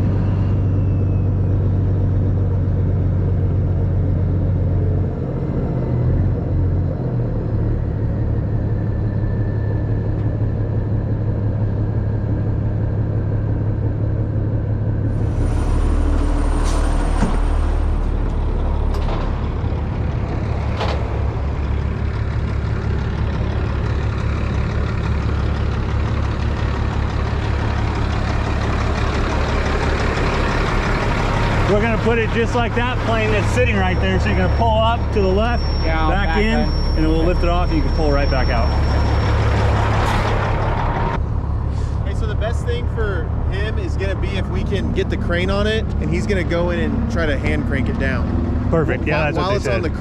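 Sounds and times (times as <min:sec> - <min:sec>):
truck diesel engine running: 0:00.0 - 0:50.0.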